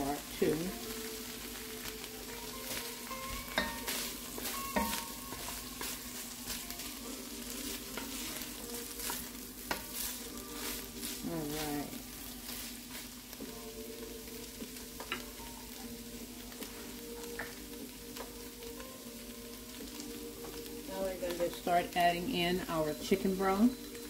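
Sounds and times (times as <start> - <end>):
chicken sizzling in butter: 0.0 - 24.0
wooden spatula scraping and tapping pot: 2.6 - 11.9, 14.7 - 15.4.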